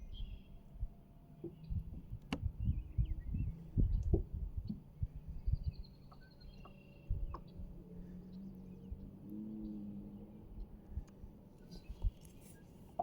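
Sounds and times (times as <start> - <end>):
faint bird chirps and whistles: 0.0 - 0.7, 2.5 - 9.8, 11.6 - 13.0.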